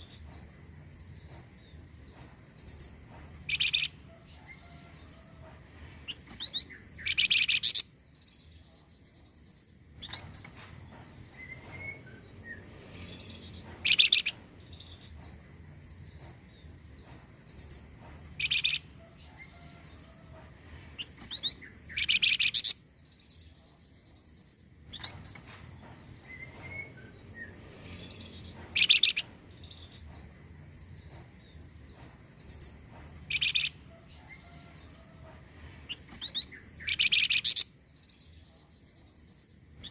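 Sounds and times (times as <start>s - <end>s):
soft bird twittering: 6.1s - 10.5s, 21.0s - 25.4s, 35.9s - 37.7s.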